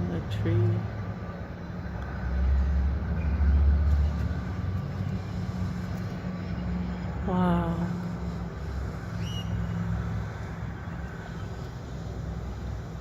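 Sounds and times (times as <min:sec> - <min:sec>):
passing vehicle traffic rumble: 0:00.0 - 0:13.0
steady low hum: 0:00.0 - 0:13.0.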